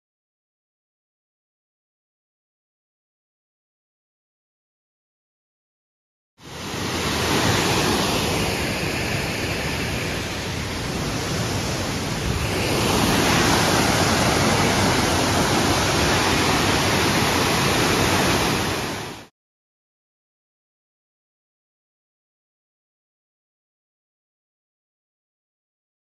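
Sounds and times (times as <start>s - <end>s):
waterfall roaring: 6.5s - 19.3s.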